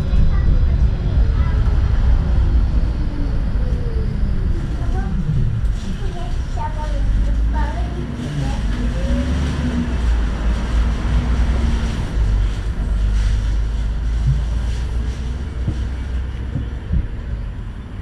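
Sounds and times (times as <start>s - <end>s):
tram rumbling on rails: 0.0s - 18.0s.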